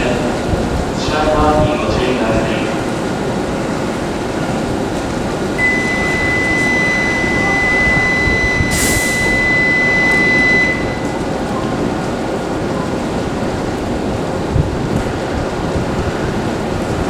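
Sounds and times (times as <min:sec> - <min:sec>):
rumble of train and machinery: 0:00.0 - 0:17.0
high electronic tone: 0:05.6 - 0:11.1
air hiss burst: 0:08.7 - 0:09.4.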